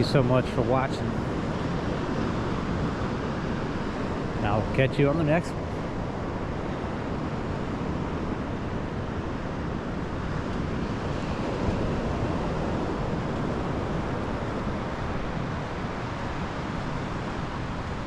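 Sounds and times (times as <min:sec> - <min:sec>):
ocean surf washing onto beach: 0:00.0 - 0:18.0
wind on microphone: 0:00.0 - 0:18.0.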